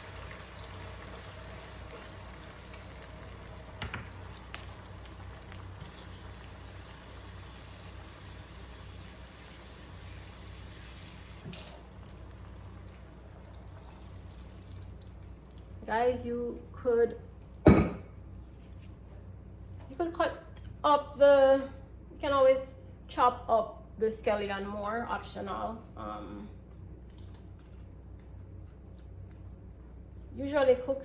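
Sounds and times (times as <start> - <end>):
water pouring into pot: 0.0 - 15.7.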